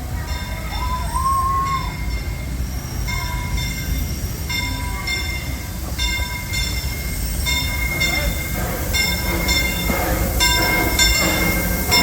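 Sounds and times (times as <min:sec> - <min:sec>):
train rumbling on track: 0:00.0 - 0:12.0
train wheels squealing: 0:00.2 - 0:12.0.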